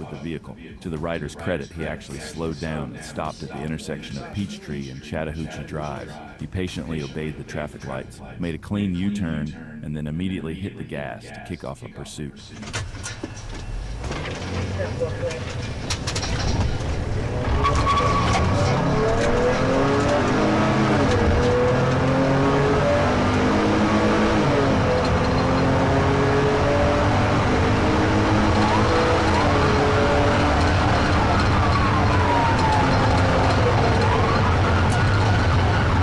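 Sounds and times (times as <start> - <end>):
road and wind noise: 12.6 - 36.0
vehicle engine revving hard: 13.2 - 36.0
police siren wailing: 13.6 - 36.0.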